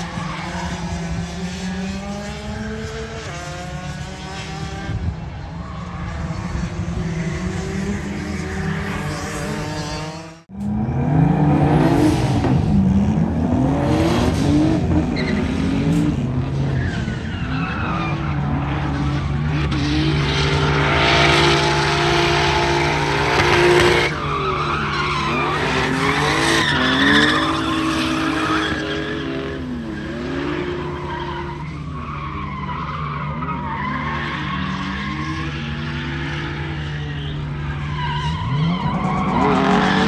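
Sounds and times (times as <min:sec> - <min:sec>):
tyres skidding and squealing: 0:00.0 - 0:40.0
car engine revving hard: 0:06.4 - 0:17.2, 0:18.5 - 0:24.6.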